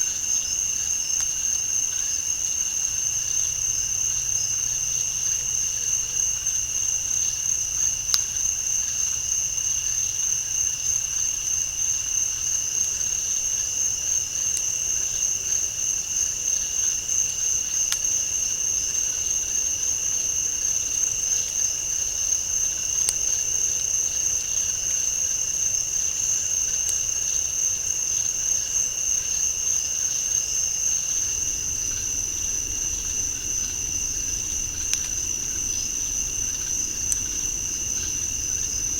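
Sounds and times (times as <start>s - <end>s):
insect chorus drone: 0.0s - 38.9s
faint sharp clicks: 31.3s - 38.9s.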